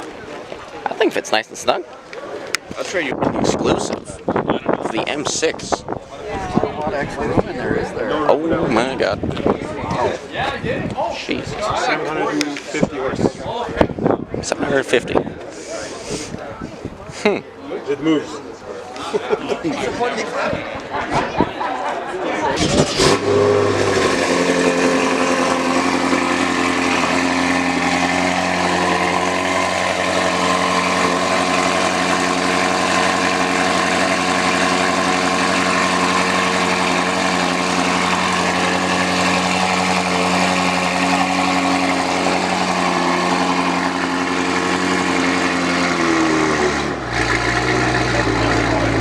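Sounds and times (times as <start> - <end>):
car engine idling: 22.6 - 49.0.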